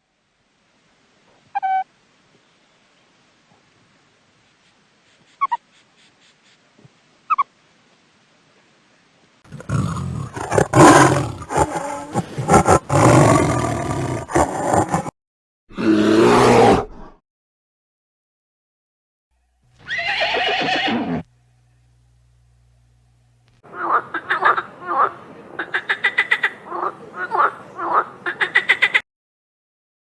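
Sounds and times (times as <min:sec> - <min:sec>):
big cat roaring and growling: 0:09.5 - 0:15.1, 0:15.7 - 0:17.1.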